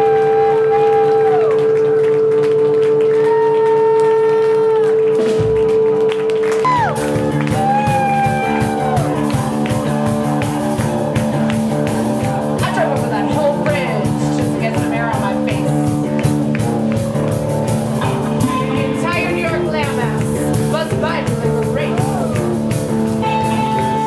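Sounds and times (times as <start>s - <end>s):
held chords: 0.0s - 24.0s
drums keeping steady beat: 5.0s - 24.0s.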